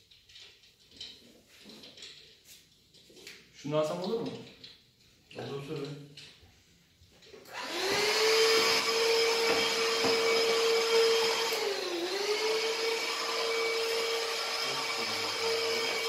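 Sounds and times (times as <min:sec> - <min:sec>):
electric motor high whine: 0:07.5 - 0:16.0.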